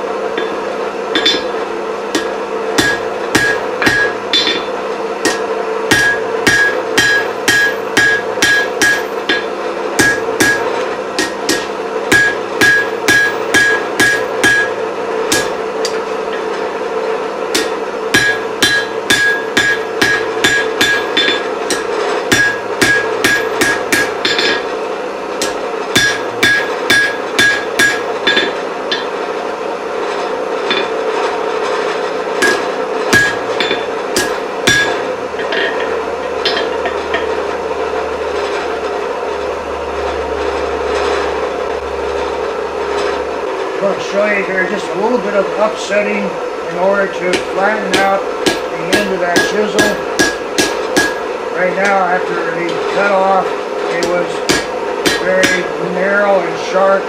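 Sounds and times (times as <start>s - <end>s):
steady hum: 0.0s - 57.0s
hammer striking steel on anvil: 0.4s - 16.5s, 17.5s - 24.7s, 25.4s - 29.2s, 30.7s - 31.0s, 32.4s - 37.5s, 47.3s - 52.0s, 54.0s - 55.7s
anvil ringing: 1.2s - 1.6s, 2.2s - 16.5s, 17.5s - 24.7s, 25.4s - 29.2s, 32.4s - 37.4s, 47.3s - 51.3s, 54.0s - 55.7s.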